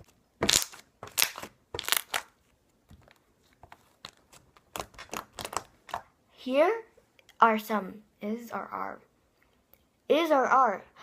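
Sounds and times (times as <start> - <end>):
slime clicking and popping: 0.4 - 2.3.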